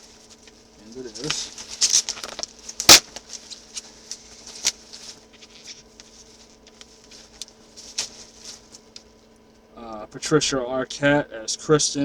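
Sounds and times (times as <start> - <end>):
packaging rustling and scratching: 0.0 - 9.1
faint steady hum: 0.0 - 12.0.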